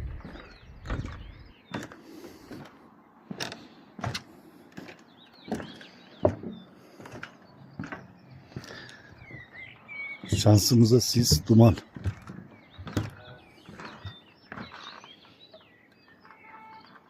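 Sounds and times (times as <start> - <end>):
sharp clicks and knocks: 10.2 - 15.0.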